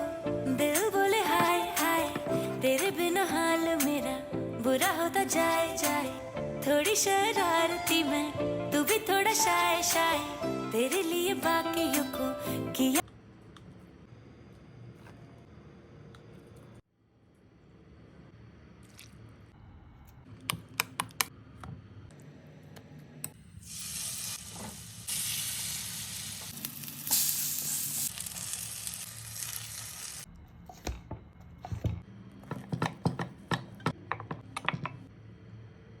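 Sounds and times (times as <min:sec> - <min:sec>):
food sizzling in hot oil: 0:23.6 - 0:30.3.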